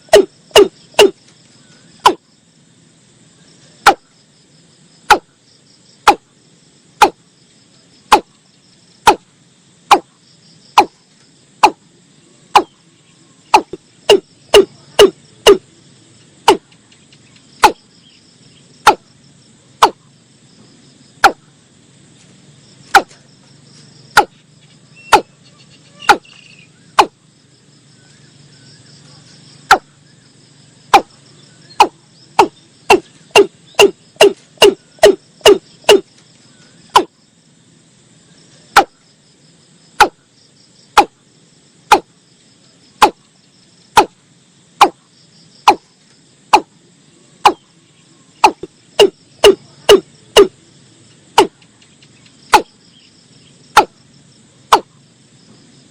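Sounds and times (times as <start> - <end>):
insects buzzing: 0.0 - 55.9
bird hollow dropping calls: 13.5 - 15.6, 26.0 - 27.1.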